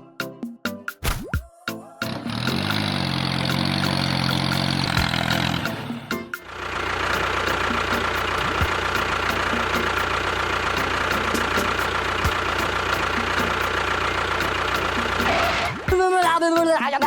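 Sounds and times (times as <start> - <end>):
engine idling: 2.1 - 15.9.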